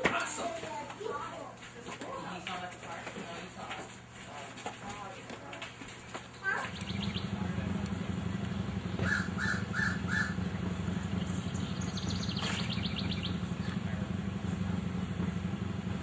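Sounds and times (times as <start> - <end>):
steady low hum: 0.4 - 16.0
crow cawing: 9.0 - 10.5.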